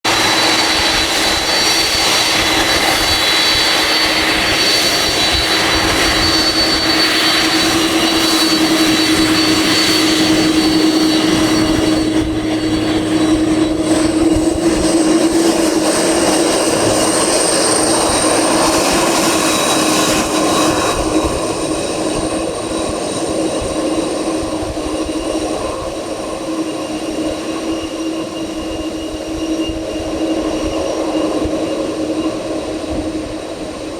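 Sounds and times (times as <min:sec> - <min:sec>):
jet engines with high whine: 0:00.0 - 0:33.9.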